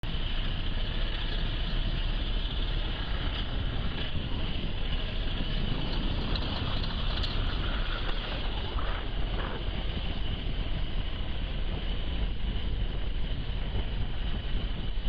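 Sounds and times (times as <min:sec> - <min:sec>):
motor vehicle running: 0:00.0 - 0:15.0
wind noise on microphone: 0:00.1 - 0:15.0.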